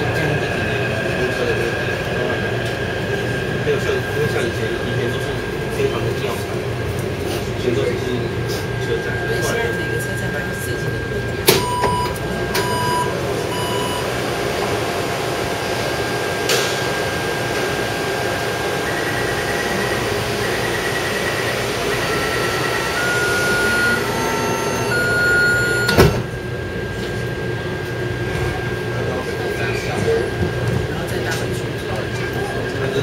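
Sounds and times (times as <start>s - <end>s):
train ride rumble: 0.0s - 33.0s.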